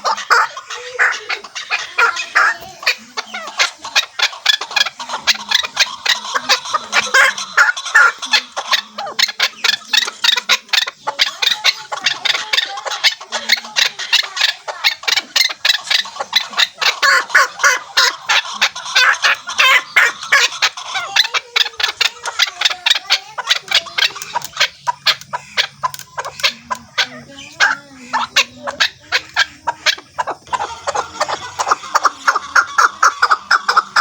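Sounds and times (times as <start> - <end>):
partridge clucking calls: 0.0 - 34.0.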